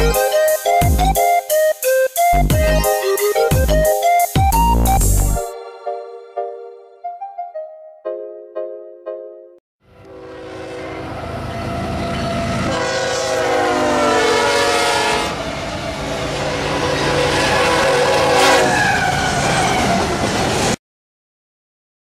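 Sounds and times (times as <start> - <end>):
train air horn blowing: 9.9 - 20.0.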